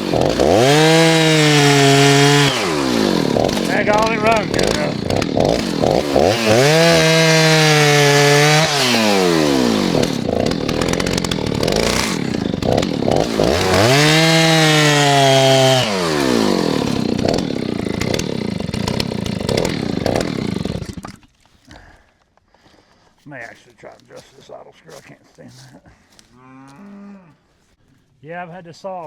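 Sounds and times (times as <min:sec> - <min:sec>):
chainsaw revving and idling: 0:00.0 - 0:21.2.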